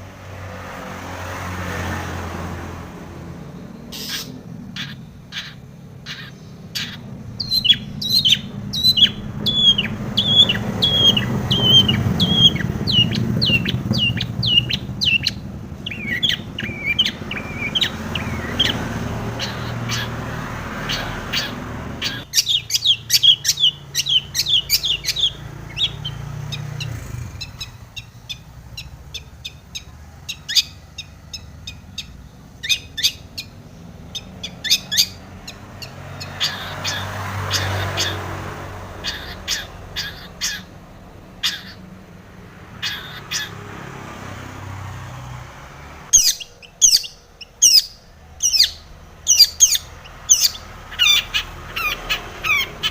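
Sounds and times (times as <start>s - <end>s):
shrike singing sharp chirps: 3.7s - 38.4s, 46.1s - 52.9s
low background rumble: 4.5s - 18.6s.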